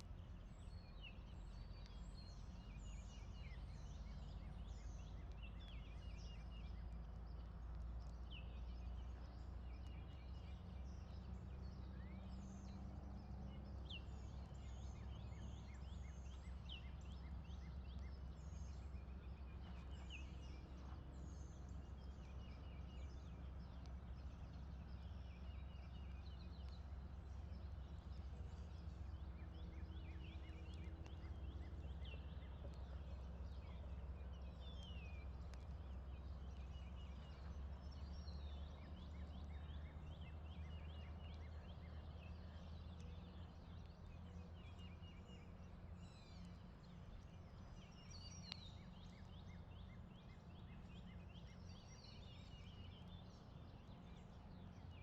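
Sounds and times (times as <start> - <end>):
steady low rumble: 0.0 - 54.9
birds chirping and singing: 44.6 - 55.0.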